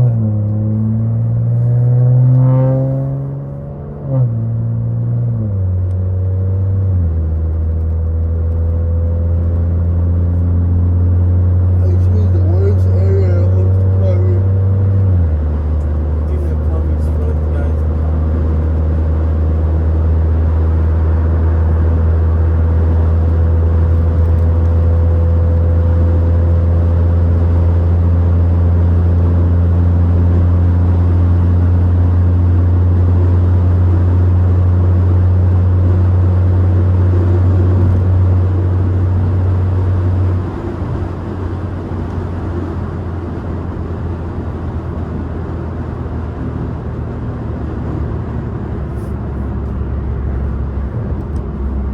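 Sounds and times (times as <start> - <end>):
car exhaust drone: 0.0 - 51.9
rough engine and road noise: 0.0 - 51.9.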